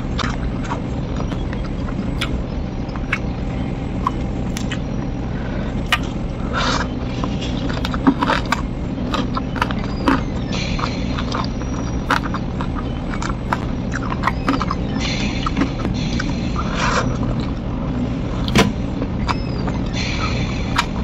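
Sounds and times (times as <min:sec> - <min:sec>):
steady low hum: 0:00.0 - 0:21.0
wet chewing with lip smacks: 0:00.2 - 0:03.3, 0:04.0 - 0:04.9, 0:05.8 - 0:17.6.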